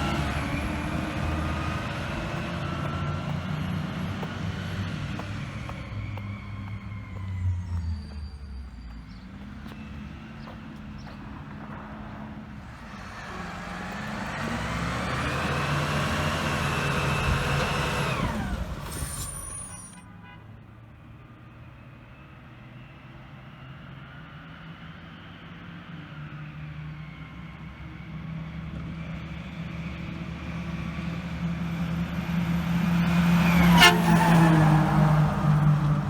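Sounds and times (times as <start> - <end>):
truck engine idling: 0.0 - 20.0
truck engine revving with whine: 0.0 - 20.0, 23.4 - 36.0.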